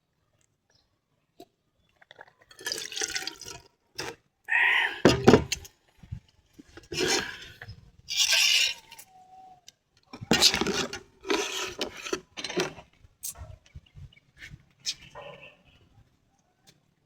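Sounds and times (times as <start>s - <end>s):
close-up liquid sounds: 1.4s - 9.3s.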